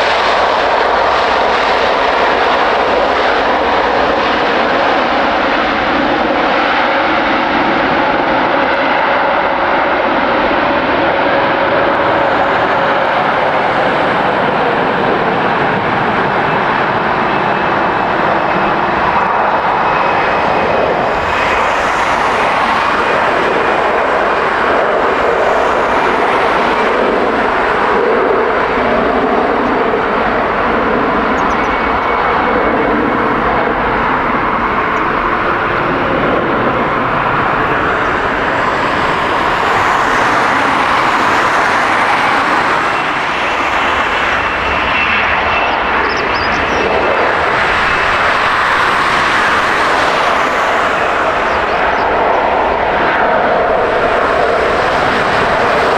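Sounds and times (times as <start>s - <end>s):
jet engines roaring: 0.0s - 55.9s
faint high whine: 17.0s - 52.7s.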